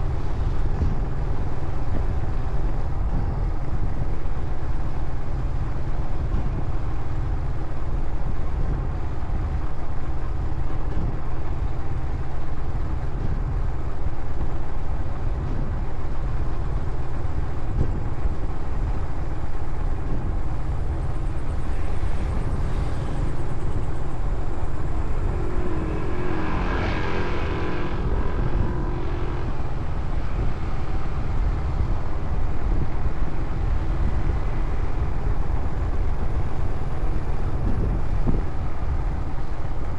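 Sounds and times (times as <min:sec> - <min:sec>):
motorcycle engine and road rumble: 0:00.0 - 0:39.9
wind on microphone: 0:00.0 - 0:39.9.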